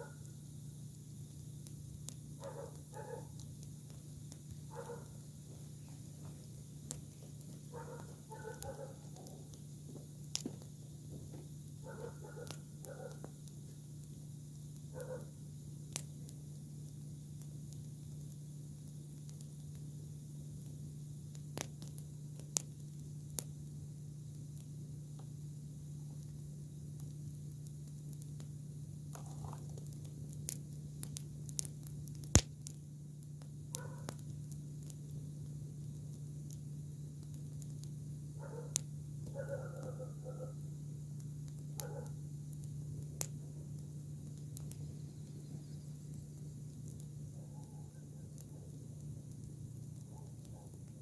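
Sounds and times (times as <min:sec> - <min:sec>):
campfire popping and crackling: 0:00.0 - 0:51.0
fire hissing: 0:00.0 - 0:51.0.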